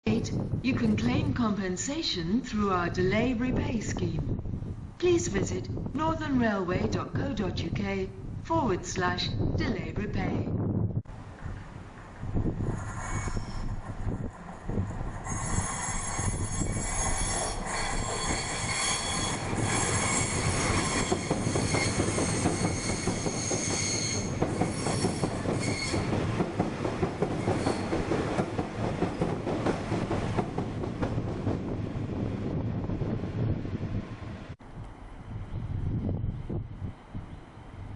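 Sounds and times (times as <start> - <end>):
train wheels rumbling on rails: 11.0 - 37.9
high-pitched metallic squeal: 12.6 - 13.9, 15.2 - 26.1.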